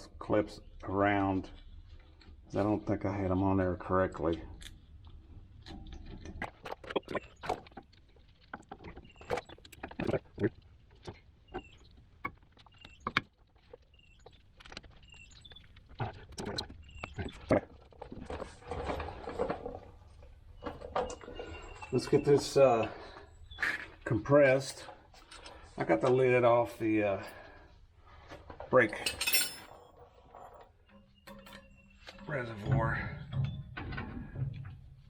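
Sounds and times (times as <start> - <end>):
scraping rustle: 14.5 - 23.2
metallic clicks and clinks: 28.9 - 32.3.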